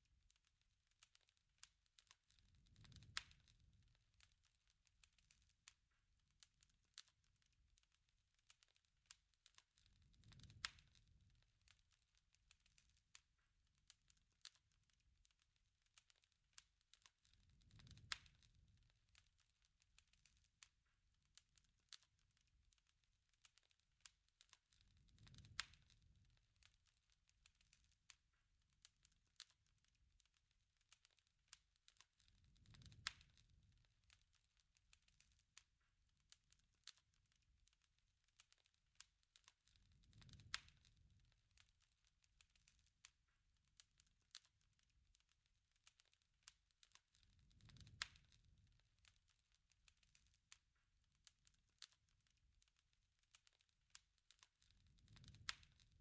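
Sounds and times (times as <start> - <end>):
campfire crackling: 0.0 - 56.0
low rush of flame: 32.4 - 33.8.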